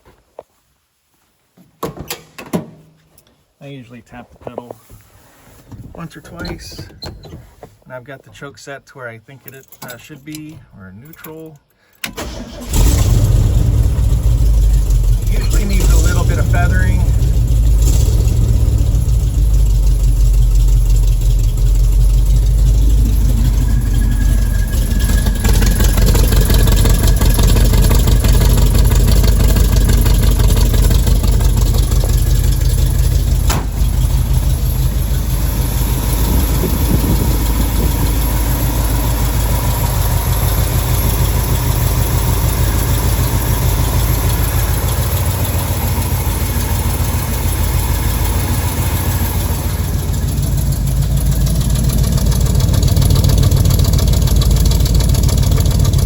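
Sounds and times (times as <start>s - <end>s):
truck engine idling: 12.2s - 56.0s.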